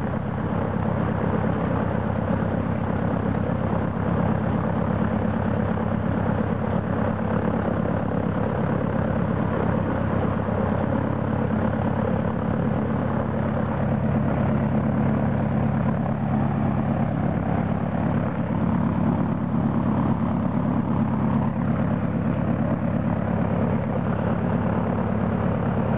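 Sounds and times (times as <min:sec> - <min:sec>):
propeller plane engine humming: 0:00.0 - 0:25.9.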